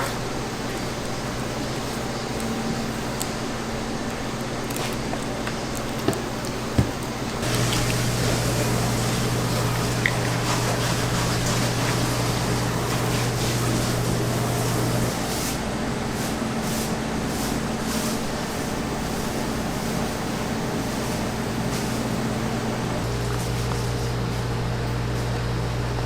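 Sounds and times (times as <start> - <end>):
machine hum with low drone: 7.3 - 16.3.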